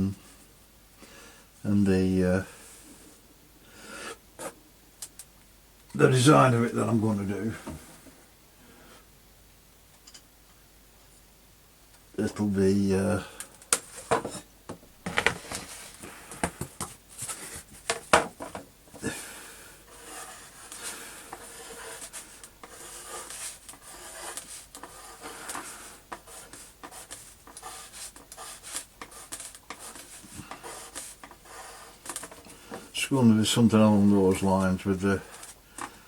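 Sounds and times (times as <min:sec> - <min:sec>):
drawing tool scratching on surface: 0:19.9 - 0:32.5.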